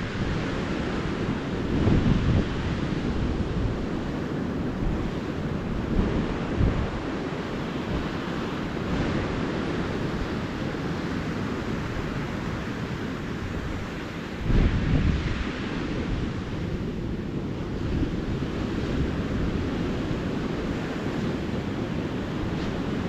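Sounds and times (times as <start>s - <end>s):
ocean surf washing onto beach: 0.0s - 23.0s
wind buffeting microphone: 0.0s - 23.0s.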